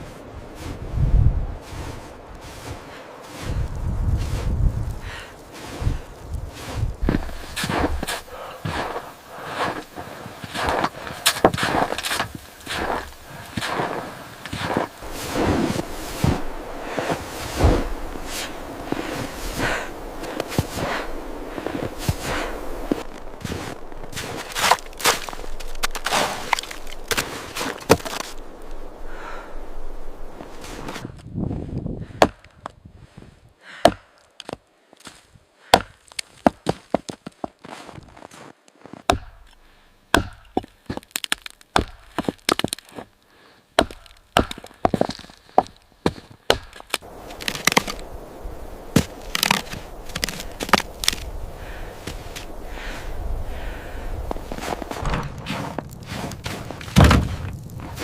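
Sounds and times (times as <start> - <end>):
brushing sounds: 1.6 - 4.7, 6.6 - 28.6, 30.2 - 31.1, 54.2 - 58.0
irregular footsteps: 1.7 - 28.6, 34.3 - 39.6, 43.8 - 48.2, 48.8 - 53.0, 54.2 - 58.0
sharp knocks and cracks: 39.1 - 43.0, 43.8 - 48.0, 49.0 - 51.2, 56.8 - 57.6.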